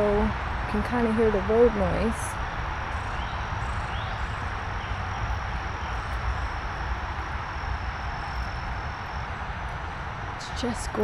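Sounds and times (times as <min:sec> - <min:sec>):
road traffic hum: 0:00.0 - 0:11.0
high-pitched insect drone: 0:02.3 - 0:11.0.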